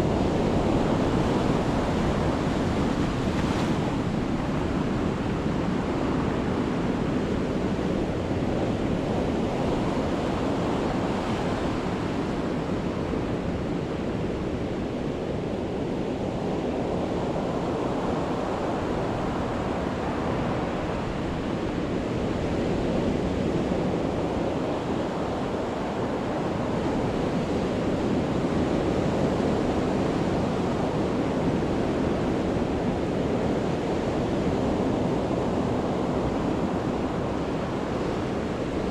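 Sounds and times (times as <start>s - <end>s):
sea waves breaking: 0.2s - 5.6s.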